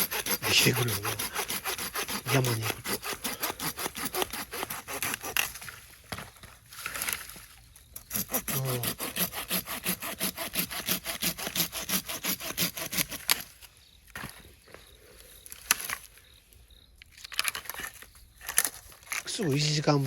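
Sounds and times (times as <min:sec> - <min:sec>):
hand saw cutting wood: 0:00.0 - 0:05.6, 0:08.0 - 0:13.7.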